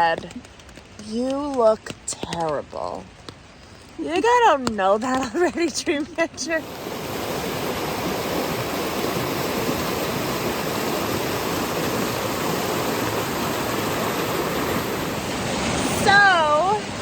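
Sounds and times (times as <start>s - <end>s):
river water rushing: 6.4s - 17.0s.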